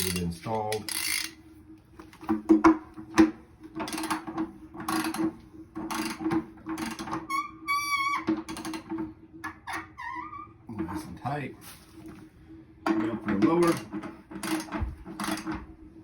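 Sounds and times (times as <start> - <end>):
ratchet clicking: 0.0 - 1.4
steady low hum: 10.5 - 16.0.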